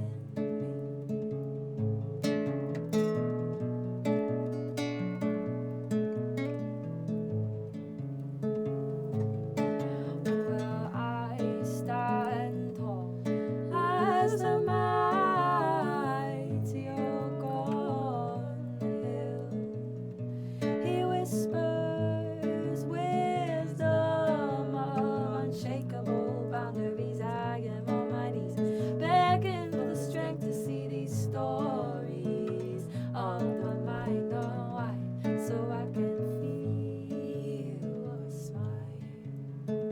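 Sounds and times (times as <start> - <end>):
strummed acoustic guitar: 0.0 - 39.9
wavering wordless melody: 10.3 - 19.6.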